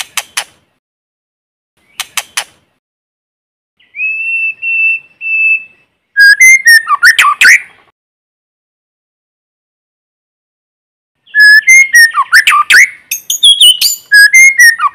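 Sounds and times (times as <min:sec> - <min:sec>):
bird singing whistles and clicks: 0:00.0 - 0:00.6, 0:01.8 - 0:02.6, 0:03.8 - 0:07.7, 0:11.2 - 0:14.9.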